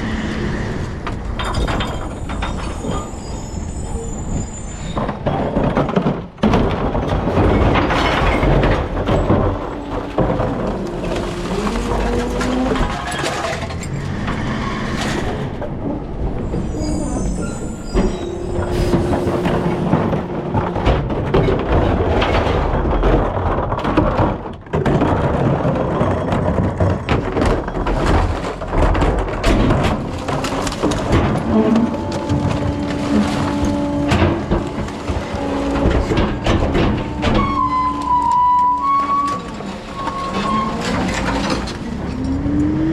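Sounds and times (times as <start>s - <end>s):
clatter: 0.0s - 42.9s
recycling truck running: 7.2s - 22.3s
whining tones shifting in pitch: 13.8s - 20.8s.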